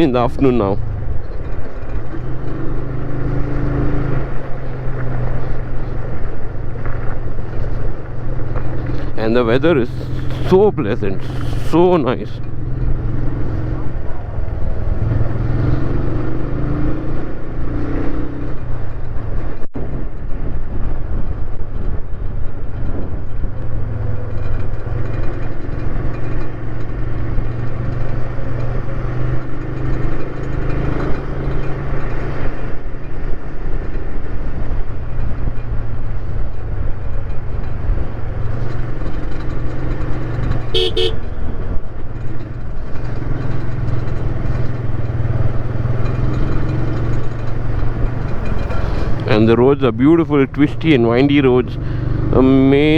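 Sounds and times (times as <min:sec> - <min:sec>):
motorcycle running: 0:00.0 - 0:52.9
motorcycle horn beep: 0:40.7 - 0:41.6.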